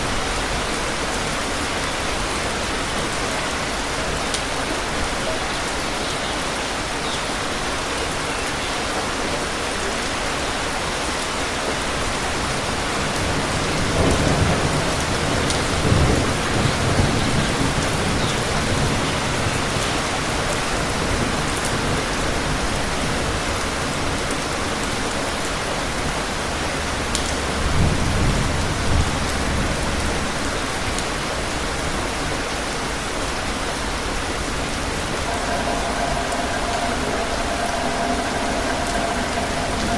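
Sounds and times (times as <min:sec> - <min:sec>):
heavy rain falling: 0:00.0 - 0:39.9
thunder rumbling: 0:34.0 - 0:39.9.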